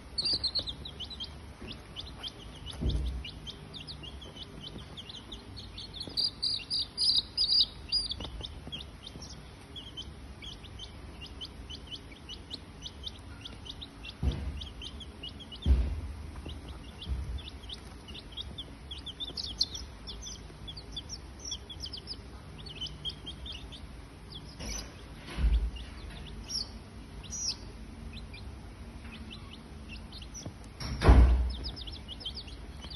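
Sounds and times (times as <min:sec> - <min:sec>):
birds chirping: 0:00.0 - 0:32.9
dull thumps: 0:00.3 - 0:09.4, 0:14.1 - 0:20.9.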